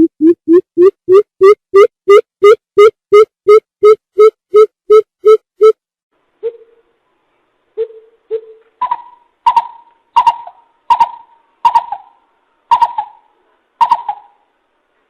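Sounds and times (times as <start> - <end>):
coucal hooting: 7.8 - 14.4.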